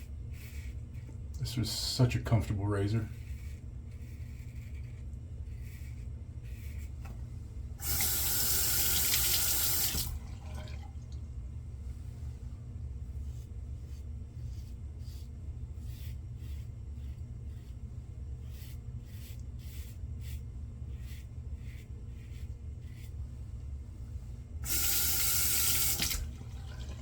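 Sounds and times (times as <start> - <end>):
tap water running: 7.8 - 11.3, 24.6 - 27.0
razor scraping stubble: 13.9 - 17.8, 18.4 - 23.2.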